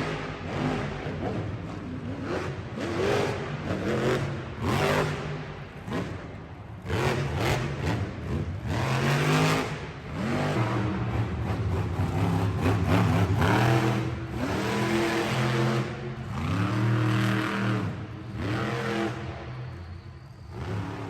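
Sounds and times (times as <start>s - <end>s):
monster truck engine revving: 6.8s - 21.0s.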